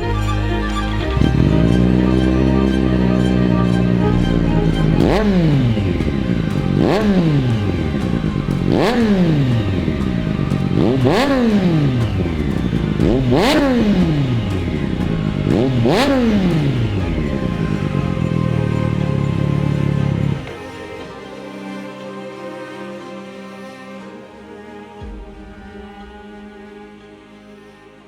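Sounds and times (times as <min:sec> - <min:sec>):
motorcycle engine revving: 0:00.9 - 0:20.6.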